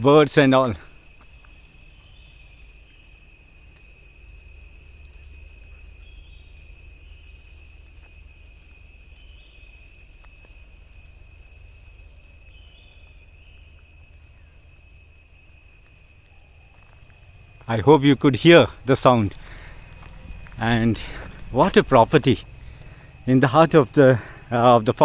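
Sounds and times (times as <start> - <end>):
crickets and cicadas droning: 0.0 - 25.0
faint bird chirps: 0.9 - 3.2, 4.9 - 7.7, 9.0 - 9.9, 11.4 - 14.7.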